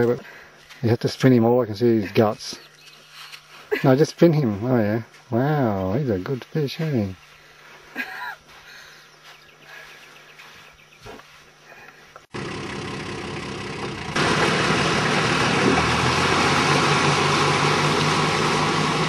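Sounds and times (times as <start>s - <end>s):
faint outdoor background: 0.0s - 15.6s
engine running: 12.2s - 19.0s.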